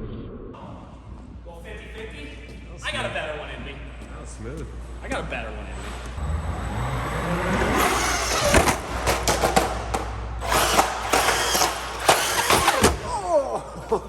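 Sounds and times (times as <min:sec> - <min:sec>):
rushing tyre noise: 0:04.8 - 0:13.0
electric motor whining: 0:05.8 - 0:13.4.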